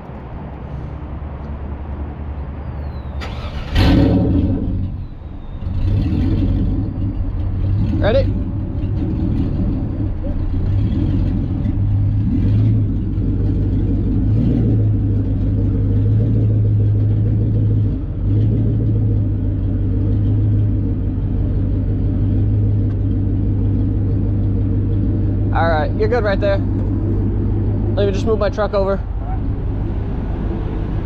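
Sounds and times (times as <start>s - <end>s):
truck engine rumbling: 0.0s - 31.0s.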